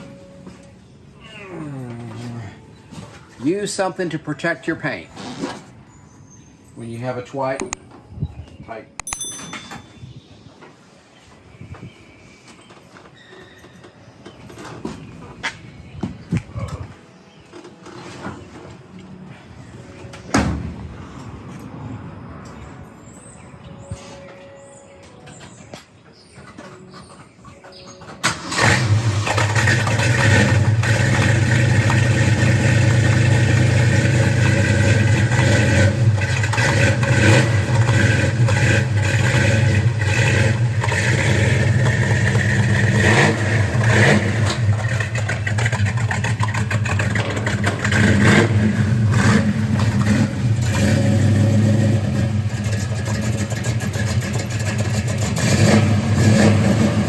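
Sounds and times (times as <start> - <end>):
car engine starting and revving: 28.2 - 57.0.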